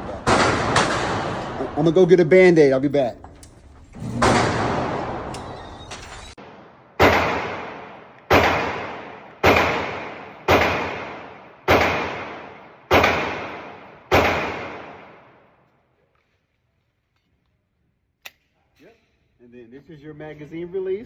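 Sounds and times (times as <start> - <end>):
echoing gunshots: 0.0 - 2.7, 4.1 - 5.4, 6.3 - 15.6.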